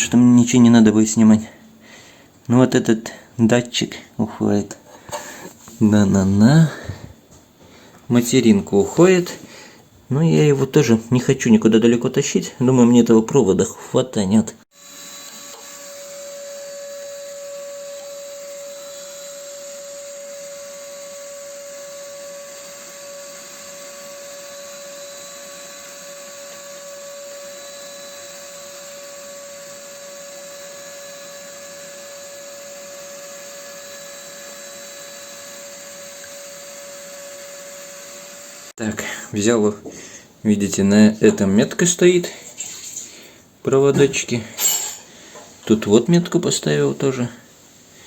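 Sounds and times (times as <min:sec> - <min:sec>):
small electric motor whining: 0:14.8 - 0:38.8.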